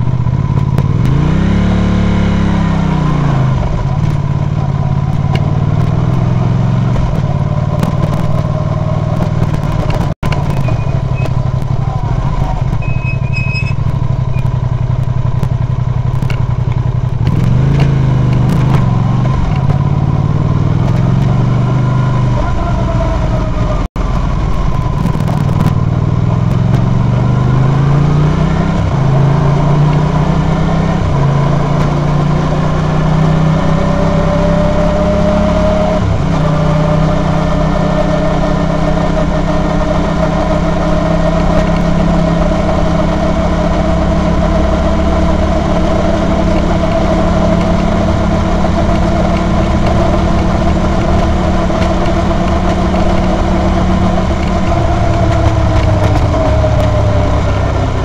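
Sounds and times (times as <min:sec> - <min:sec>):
motorcycle engine shifting gears: 0:00.0 - 0:58.0.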